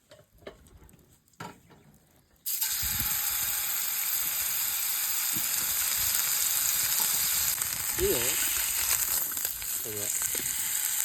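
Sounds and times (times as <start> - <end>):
food sizzling in skillet: 2.5 - 11.0.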